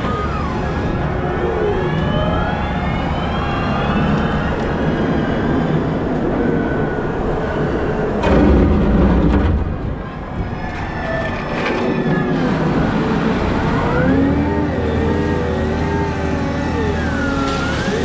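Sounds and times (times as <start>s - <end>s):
wheel loader engine rumble: 7.1s - 18.0s
rising and falling whines: 11.2s - 18.0s.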